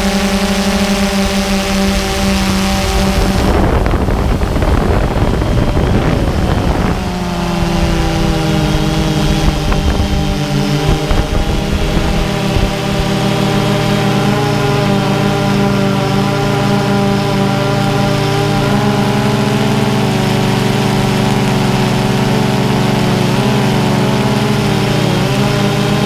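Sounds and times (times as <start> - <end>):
quadcopter motors humming: 0.0 - 26.0
rushing noise: 1.6 - 21.1.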